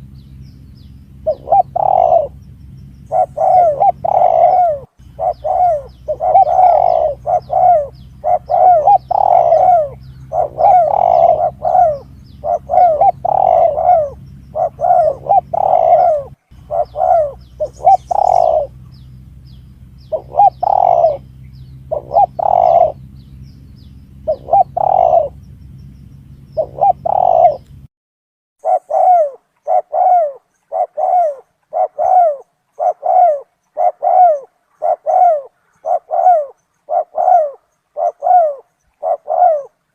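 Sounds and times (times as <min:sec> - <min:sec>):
low steady hum: 0:00.0 - 0:27.9
dove cooing: 0:01.1 - 0:25.6, 0:26.2 - 0:27.8, 0:28.6 - 0:39.9.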